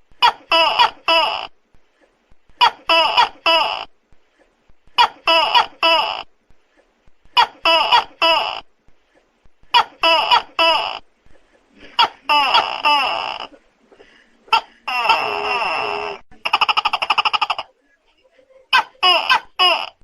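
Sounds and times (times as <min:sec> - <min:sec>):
gecko calling: 0:14.5 - 0:17.7.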